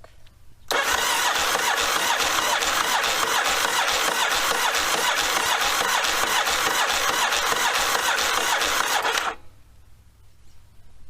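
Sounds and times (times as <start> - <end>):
motorcycle engine cranking on starter: 0.7 - 9.4.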